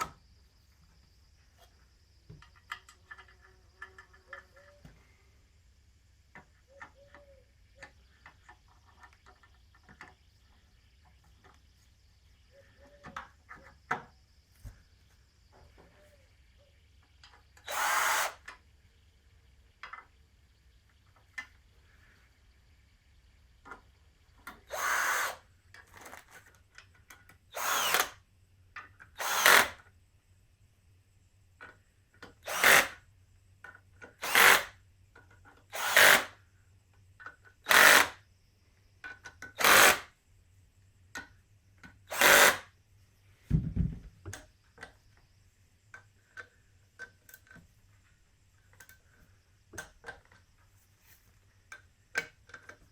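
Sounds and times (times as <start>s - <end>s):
handheld power tool bursts: 17.6s - 18.5s, 24.6s - 26.2s, 27.5s - 28.2s, 29.1s - 29.8s, 32.4s - 33.0s, 34.2s - 34.8s, 35.7s - 36.4s, 37.6s - 38.2s, 39.5s - 40.1s, 42.1s - 42.7s
dull low thump: 43.5s - 44.2s.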